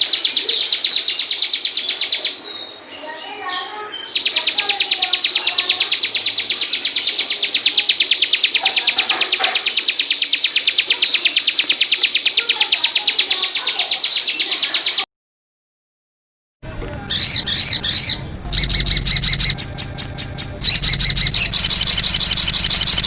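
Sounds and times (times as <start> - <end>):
faint bird chirps: 0.0 - 15.1, 17.1 - 23.0
high-pitched bird trill: 0.0 - 15.1, 17.1 - 23.0.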